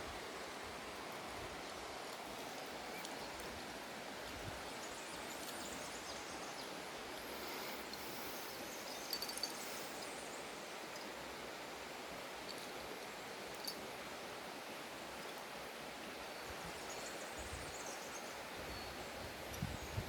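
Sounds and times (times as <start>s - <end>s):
outdoor ambient hiss: 0.0s - 20.0s.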